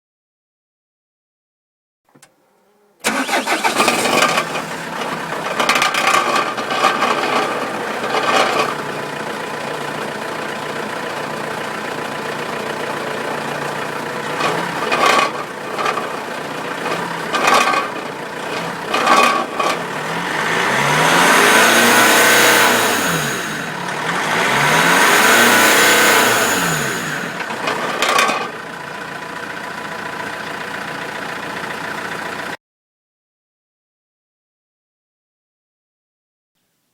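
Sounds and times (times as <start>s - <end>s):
car engine starting and revving: 2.4s - 32.5s
exhaust rattling: 3.0s - 32.6s.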